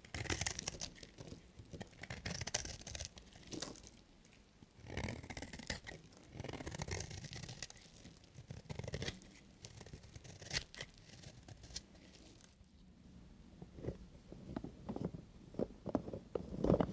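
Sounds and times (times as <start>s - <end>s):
knife cutting soap: 0.0s - 4.0s, 4.8s - 12.6s.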